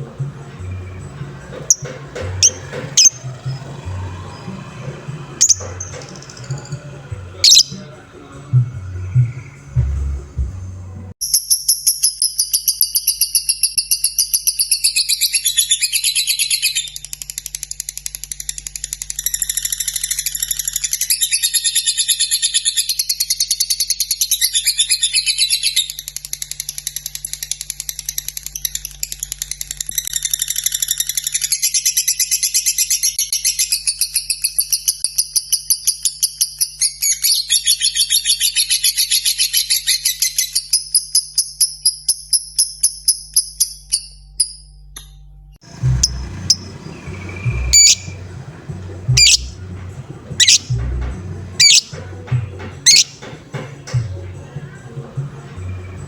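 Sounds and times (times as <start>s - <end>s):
bird chattering trill: 0.6s - 3.7s, 5.4s - 8.0s, 45.7s - 53.3s.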